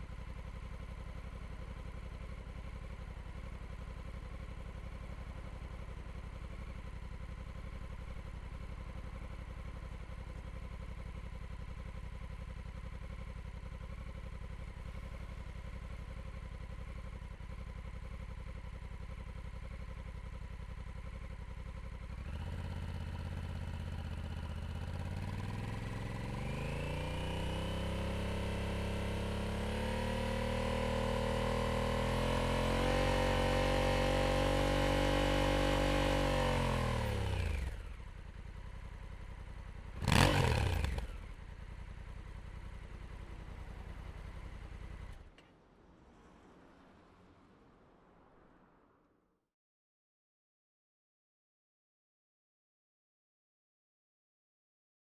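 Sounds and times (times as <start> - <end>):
motorcycle engine idling and revving: 0.0 - 49.0.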